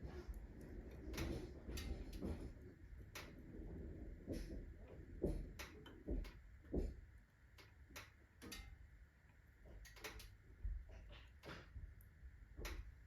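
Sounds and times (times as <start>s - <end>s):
wood fire crackling: 0.0s - 13.0s
dull knocks of iron stove: 4.2s - 7.1s.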